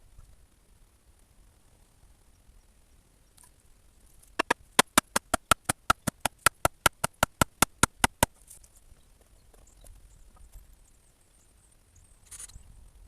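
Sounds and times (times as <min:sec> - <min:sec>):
rapid sharp clicks: 0:04.4 - 0:08.3.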